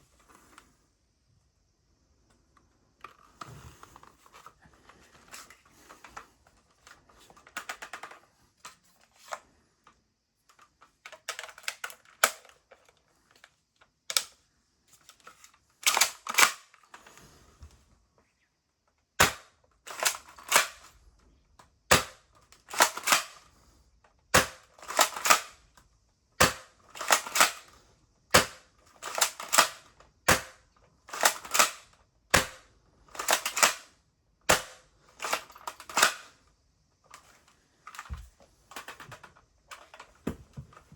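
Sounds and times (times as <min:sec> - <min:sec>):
light plastic clattering: 0:37.1 - 0:40.9.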